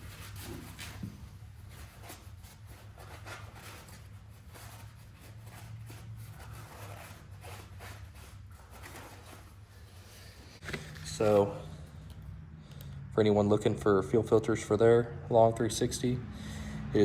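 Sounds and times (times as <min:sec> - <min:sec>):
paper towels scrubbing: 0:00.0 - 0:11.4.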